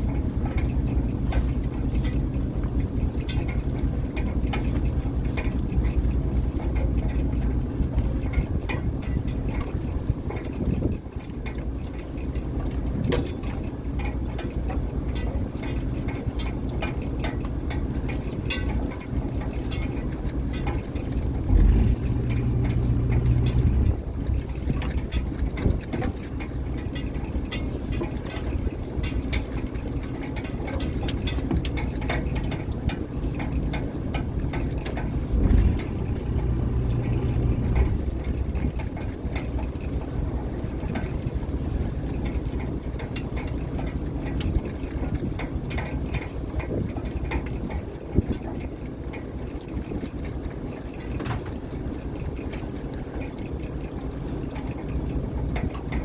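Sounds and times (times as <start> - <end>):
boat engine droning: 18.9 - 28.0, 32.0 - 41.7.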